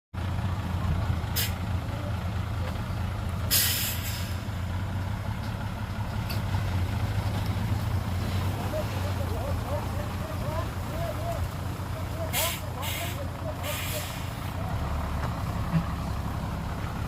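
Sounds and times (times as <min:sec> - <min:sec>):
diesel engine droning: 0:00.2 - 0:17.0
air brakes hissing: 0:01.3 - 0:01.6, 0:03.4 - 0:04.6, 0:12.3 - 0:14.6.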